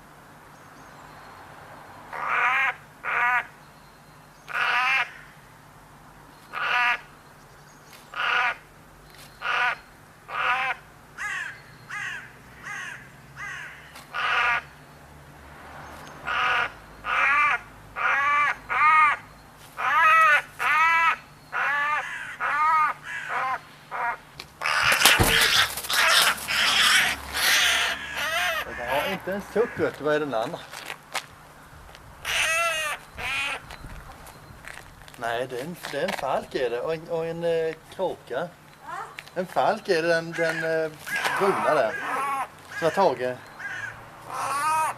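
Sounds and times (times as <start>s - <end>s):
crows cawing: 2.1s - 3.6s, 4.5s - 5.4s, 6.5s - 7.1s, 8.1s - 8.7s, 9.4s - 14.7s, 16.2s - 30.6s, 32.2s - 33.8s, 40.1s - 44.9s
loud rustling: 24.7s - 27.4s.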